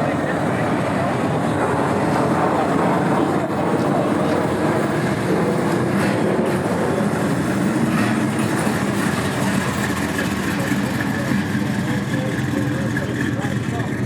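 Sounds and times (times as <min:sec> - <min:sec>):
car engine running: 0:04.8 - 0:14.0.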